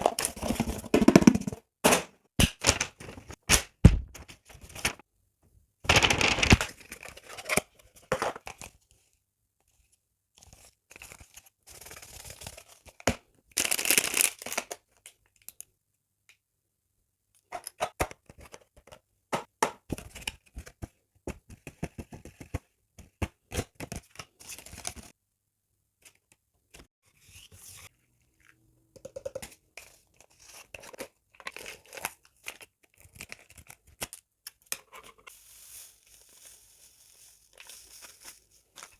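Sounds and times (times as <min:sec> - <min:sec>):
packaging tearing: 0:05.9 - 0:06.8
packaging rustling and crinkling: 0:05.9 - 0:07.6, 0:35.3 - 0:38.9.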